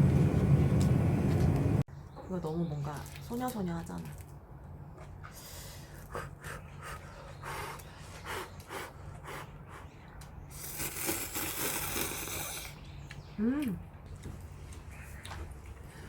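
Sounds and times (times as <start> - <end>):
steady low hum: 0.0 - 1.9
person slurping noodles: 10.5 - 12.8.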